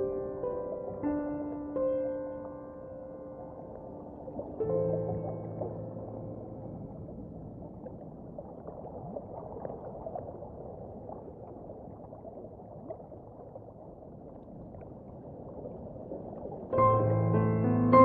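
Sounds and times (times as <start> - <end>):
underwater watery rush: 3.4 - 17.6.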